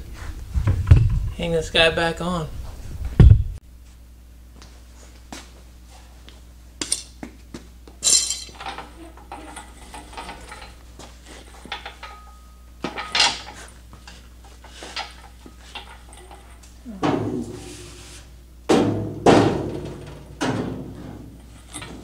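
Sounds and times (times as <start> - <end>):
sheet metal clanking against chains: 8.0 - 10.8, 11.4 - 13.8, 14.6 - 17.6.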